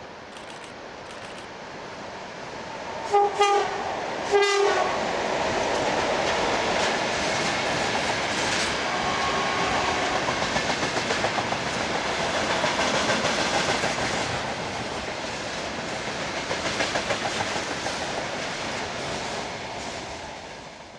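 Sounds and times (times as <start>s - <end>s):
freight train wheels clacking: 5.4s - 20.6s.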